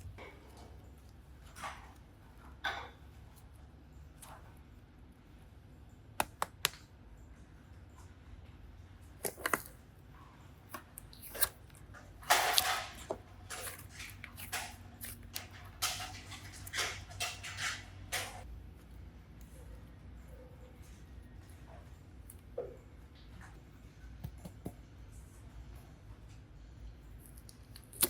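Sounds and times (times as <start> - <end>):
slime squishing and rustling: 9.2 - 9.8, 10.9 - 18.9.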